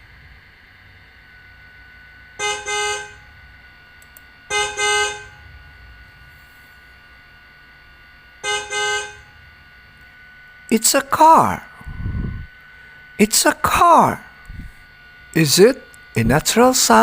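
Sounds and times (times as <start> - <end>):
car horn honking: 2.4 - 3.3, 4.5 - 5.4, 8.4 - 9.4.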